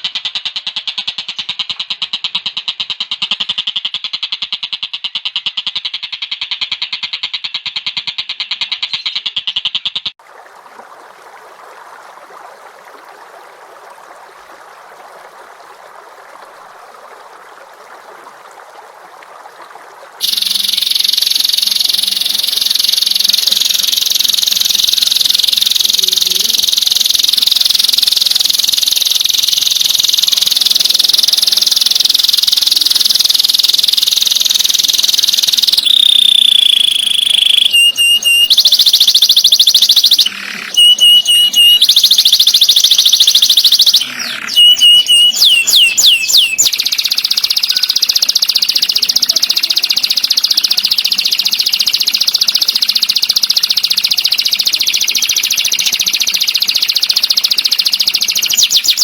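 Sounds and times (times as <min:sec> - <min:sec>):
songbird trilling: 0:00.2 - 0:10.1, 0:20.2 - 0:59.0
bird whistled notes: 0:20.2 - 0:59.0.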